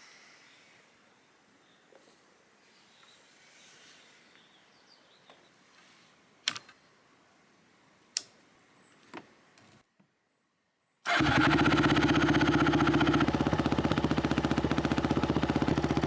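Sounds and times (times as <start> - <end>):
faint background hiss: 0.0 - 11.1
sharp clicks: 6.5 - 6.8.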